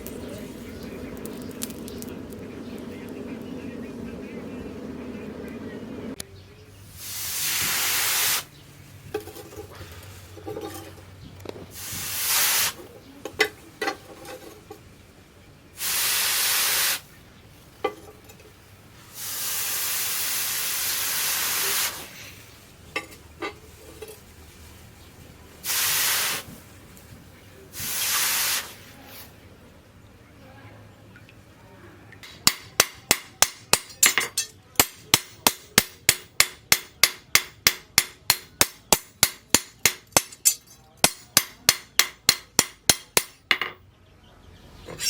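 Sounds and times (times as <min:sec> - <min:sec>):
loud hissing bursts: 0:06.9 - 0:08.5, 0:11.7 - 0:12.9, 0:15.8 - 0:17.1, 0:19.0 - 0:22.6, 0:25.6 - 0:26.6, 0:27.7 - 0:29.3.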